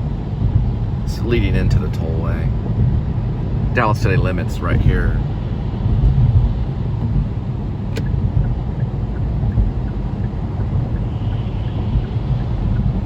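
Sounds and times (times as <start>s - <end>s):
car road and tyre noise: 0.0s - 13.0s.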